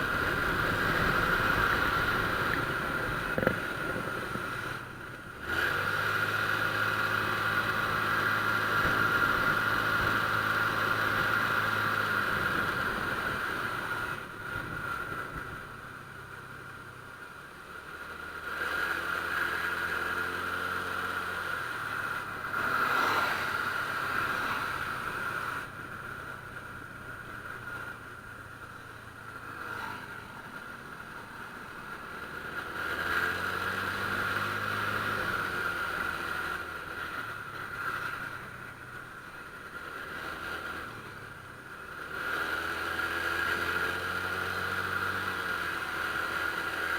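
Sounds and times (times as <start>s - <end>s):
scooter engine revving: 0.0s - 15.1s.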